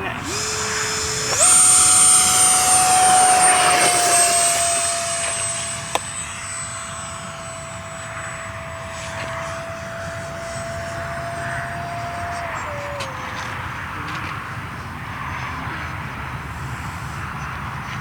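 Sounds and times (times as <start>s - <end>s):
electric ducted fan whine: 0.0s - 18.0s
sharp click: 0.3s - 6.2s.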